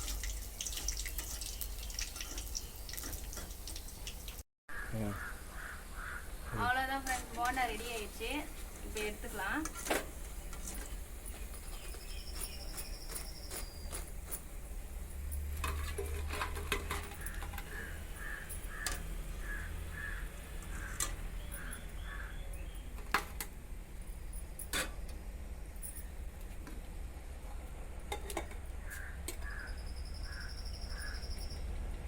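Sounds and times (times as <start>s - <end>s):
bird calling: 4.7s - 6.7s, 17.7s - 22.8s, 28.8s - 31.6s.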